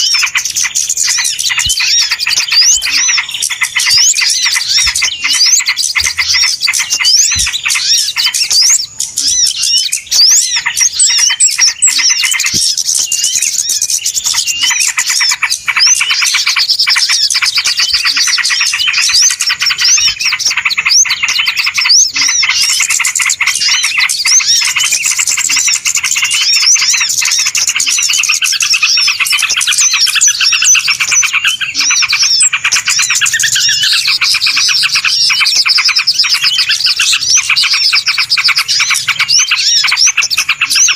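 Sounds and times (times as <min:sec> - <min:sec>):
small birds chirping chorus: 0:00.0 - 0:40.9.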